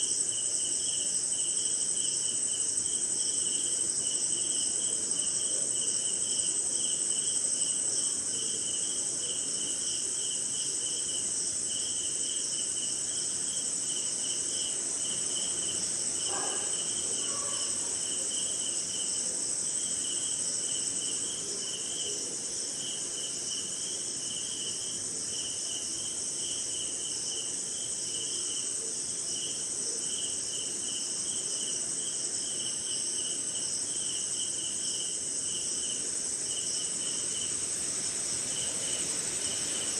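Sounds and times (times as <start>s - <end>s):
cricket pulsed chirping: 0.0s - 39.9s
insects trilling: 0.0s - 39.9s
short low insect call: 8.4s - 39.9s.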